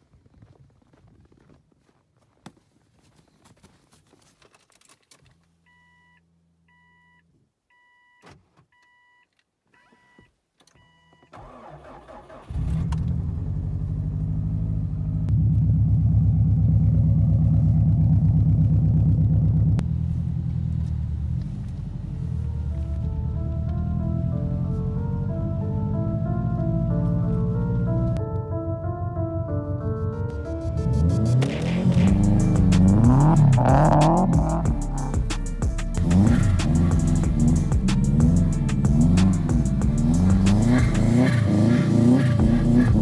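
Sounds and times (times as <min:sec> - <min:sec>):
car warning chime beeping: 0:05.7 - 0:11.7
car engine cranking and idling: 0:11.3 - 0:28.2, 0:30.3 - 0:43.0.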